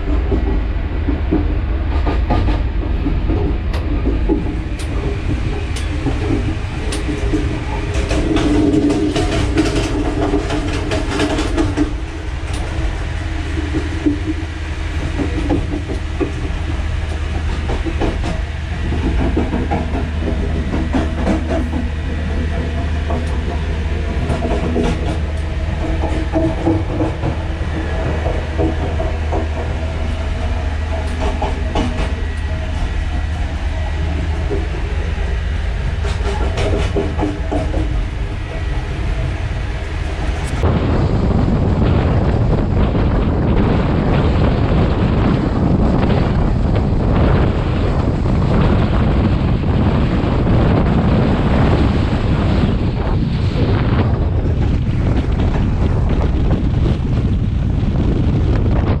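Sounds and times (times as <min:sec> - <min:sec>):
wheels clicking over rail joints: 0:00.0 - 0:40.7
train rumbling along track: 0:00.0 - 0:59.0.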